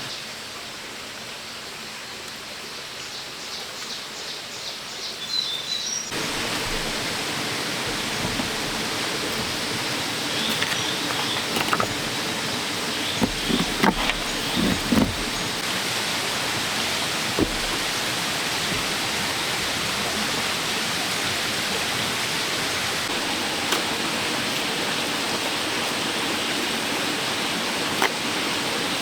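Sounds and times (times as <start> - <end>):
outdoor hiss: 0.0 - 29.0
short knocks: 6.1 - 15.7, 16.4 - 19.8.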